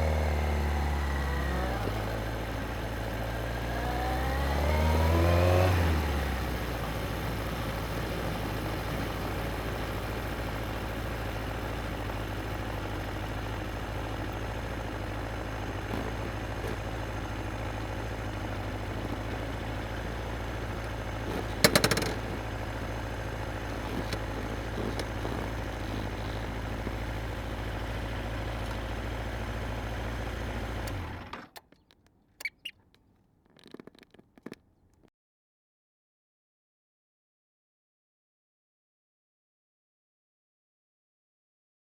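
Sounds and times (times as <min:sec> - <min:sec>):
motorcycle engine idling: 0:00.0 - 0:04.3, 0:06.0 - 0:32.9
faint clicks: 0:20.8 - 0:22.5, 0:30.8 - 0:35.1
sharp clack: 0:21.3 - 0:22.3.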